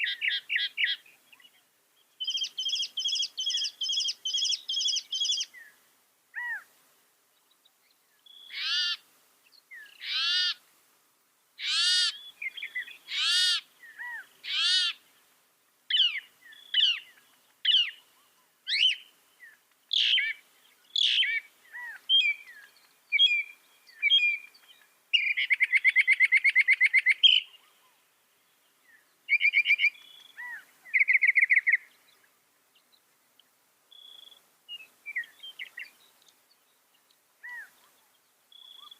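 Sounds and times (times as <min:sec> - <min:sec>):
mockingbird singing: 0:02.2 - 0:05.7, 0:08.2 - 0:09.0, 0:11.6 - 0:15.0, 0:15.9 - 0:28.0, 0:28.9 - 0:32.2, 0:37.0 - 0:38.9.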